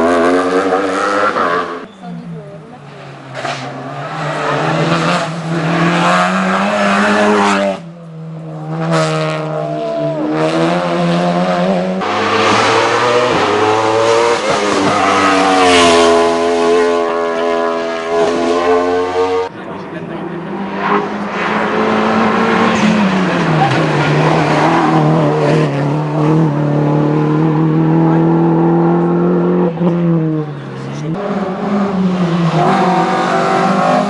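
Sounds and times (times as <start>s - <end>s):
race car engine revving: 0.0s - 1.9s, 2.7s - 34.0s.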